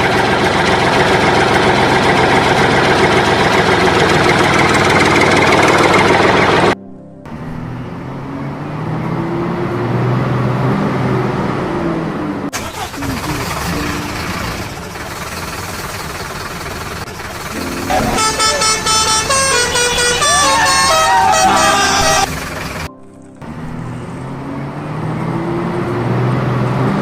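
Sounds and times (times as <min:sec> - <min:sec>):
vehicle engine noise: 0:00.0 - 0:27.0
tune of separate notes: 0:13.5 - 0:14.9, 0:17.5 - 0:22.3
horn toots: 0:17.5 - 0:22.9.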